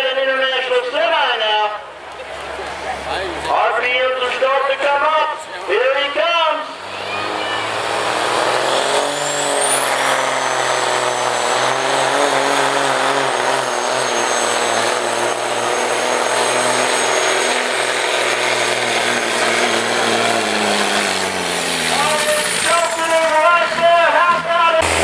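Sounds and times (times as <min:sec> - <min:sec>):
truck engine running hard: 0:00.0 - 0:25.0.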